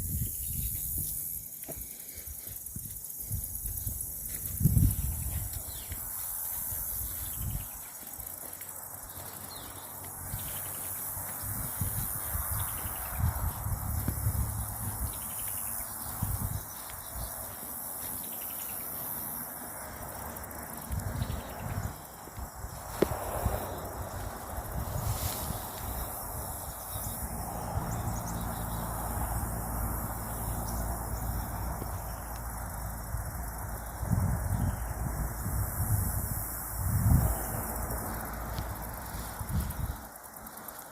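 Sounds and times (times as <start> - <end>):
footsteps on woodland floor: 0.7 - 26.8.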